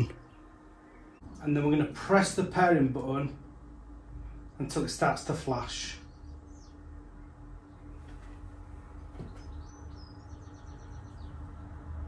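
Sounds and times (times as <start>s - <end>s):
low room hum: 0.0s - 12.0s
bird chirping faintly: 6.0s - 11.8s.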